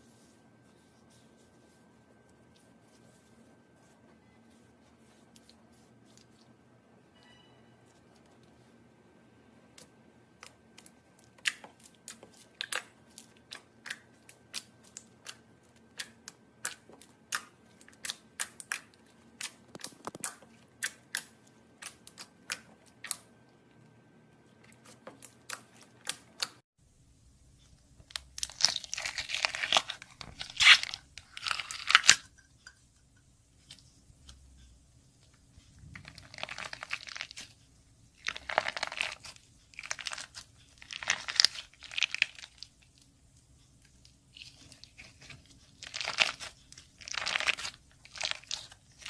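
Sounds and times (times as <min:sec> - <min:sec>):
slime crackling crunch: 0:28.1 - 0:32.3, 0:36.0 - 0:37.5, 0:38.2 - 0:42.9, 0:44.3 - 0:49.0.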